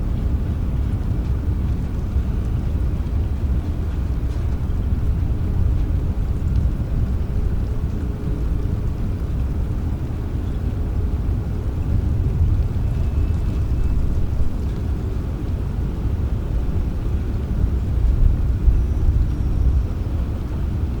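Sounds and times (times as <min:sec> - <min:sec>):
low thunder rumble: 0:00.0 - 0:21.0
rain: 0:00.0 - 0:21.0.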